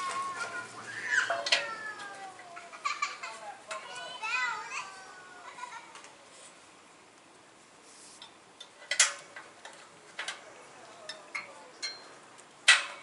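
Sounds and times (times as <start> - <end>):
metal clanks: 8.6 - 10.4, 11.1 - 13.0.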